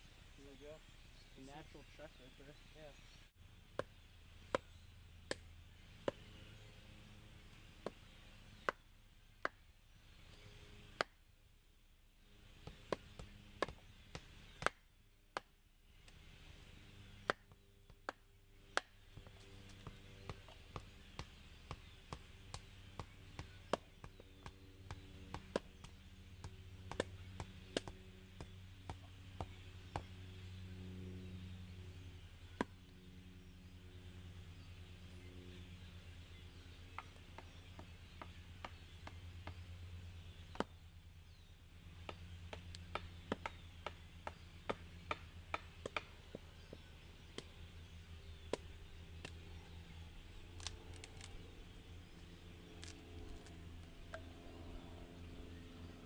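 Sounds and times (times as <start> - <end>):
wood chopping strikes: 12.6 - 16.2, 17.2 - 26.0, 26.9 - 30.1, 40.5 - 40.8.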